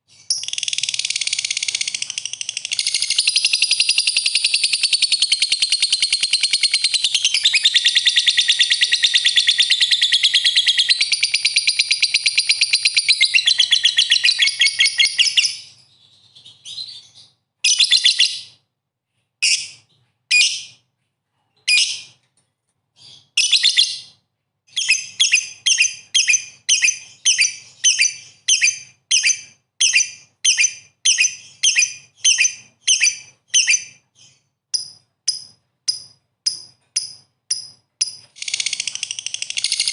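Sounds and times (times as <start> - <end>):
lovebird chattering trill: 0.3 - 15.6.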